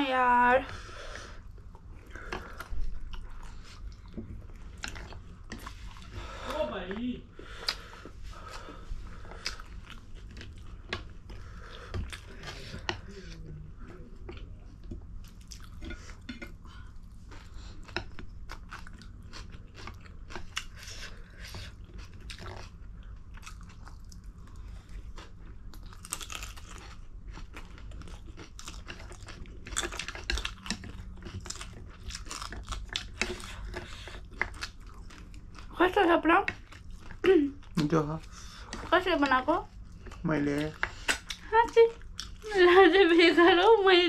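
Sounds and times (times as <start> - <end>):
people chewing and crunching: 0.0 - 44.0
steady low hum: 0.0 - 44.0.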